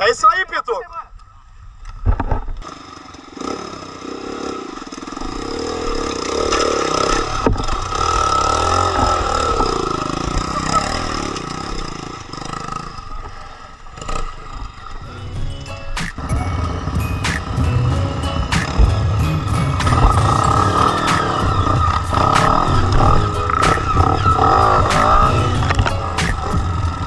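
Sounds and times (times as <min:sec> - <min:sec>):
dirt bike engine revving: 0:02.6 - 0:15.2, 0:16.0 - 0:27.0.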